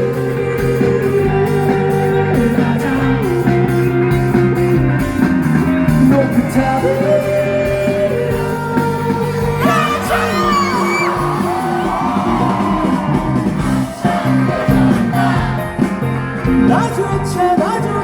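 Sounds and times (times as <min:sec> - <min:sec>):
live rock band playing: 0:00.0 - 0:18.0
high voice wailing: 0:09.6 - 0:13.1.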